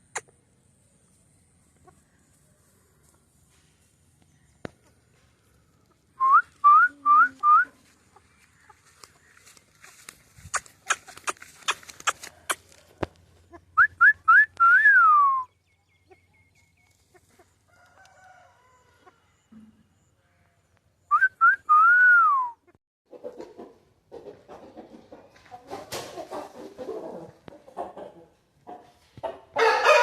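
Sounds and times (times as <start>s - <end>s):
rising whistles: 13.8s - 15.6s.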